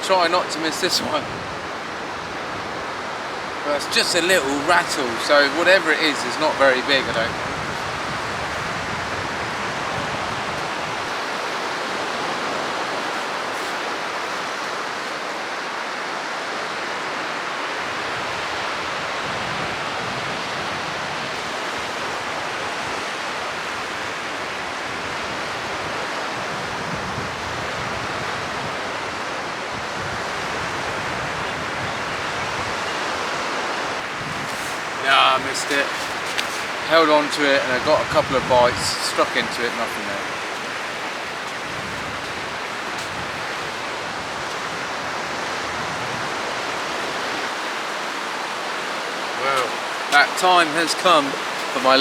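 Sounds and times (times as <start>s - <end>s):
surf washing over rocks: 0.0s - 52.0s.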